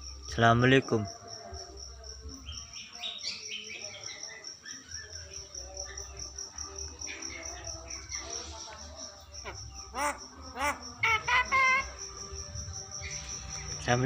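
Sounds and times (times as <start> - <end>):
insect chirping: 0.0 - 14.0
myna chattering and chirping: 7.1 - 13.8.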